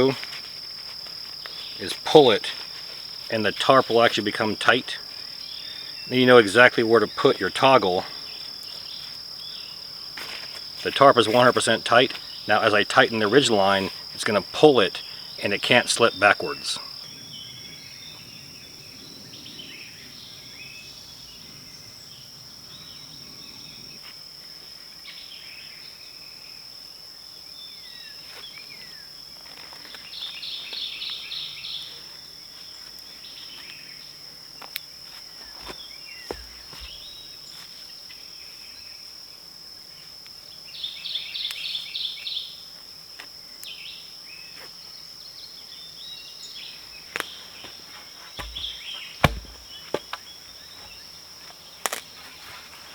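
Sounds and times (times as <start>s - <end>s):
insect high-pitched drone: 0.0s - 52.9s
clicks and knocks from gear handling: 48.4s - 49.7s
birds calling: 48.4s - 49.9s.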